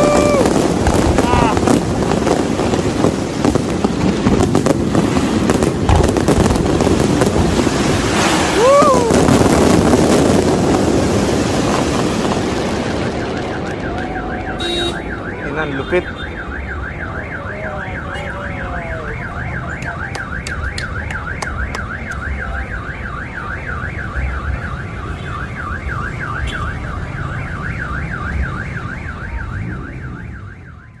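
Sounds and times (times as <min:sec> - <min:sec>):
warbling electronic alarm siren: 0:12.7 - 0:31.0.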